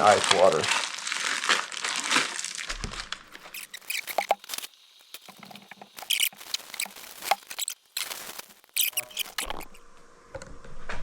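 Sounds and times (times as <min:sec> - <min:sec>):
plastic bags crinkling: 0:00.0 - 0:09.7
short squeaks: 0:03.4 - 0:09.8.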